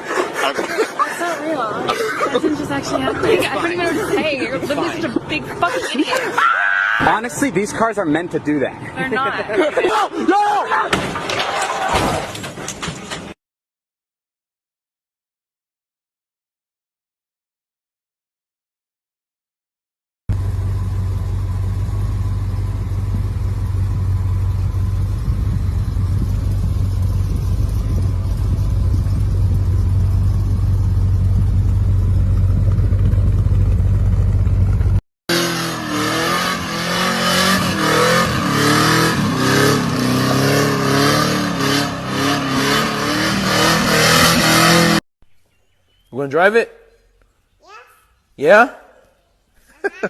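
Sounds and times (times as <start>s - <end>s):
engine droning: 20.3s - 45.0s
engine revving: 20.3s - 45.0s.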